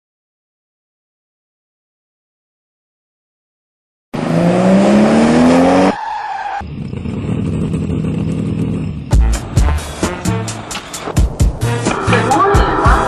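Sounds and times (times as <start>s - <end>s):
car engine revving: 4.2s - 12.8s
engine running hum: 6.6s - 12.9s.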